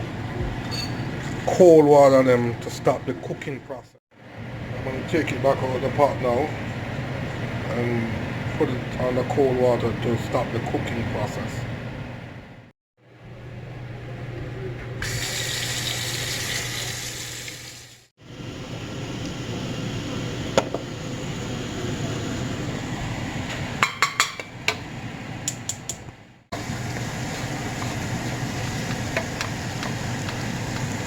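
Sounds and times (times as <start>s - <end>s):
water running from tap: 15.0s - 18.1s, 26.6s - 31.0s
dishes and utensils clinking: 23.8s - 24.6s.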